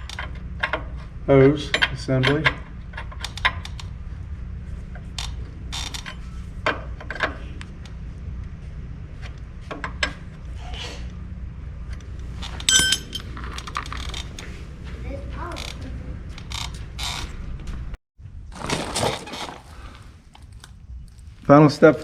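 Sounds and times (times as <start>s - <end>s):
steady low hum: 0.0s - 18.5s
hand tools clinking against metal: 12.6s - 13.6s
ringing metal clank: 12.7s - 13.3s.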